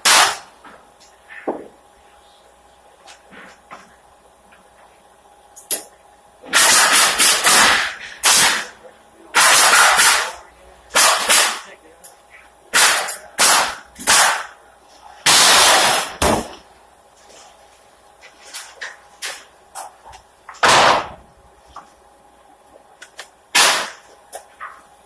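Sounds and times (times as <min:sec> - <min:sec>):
nail gun firing into wood: 0:00.0 - 0:00.5, 0:06.5 - 0:08.7, 0:09.4 - 0:11.7, 0:12.8 - 0:14.5, 0:15.3 - 0:16.5, 0:20.6 - 0:21.2, 0:23.5 - 0:24.0.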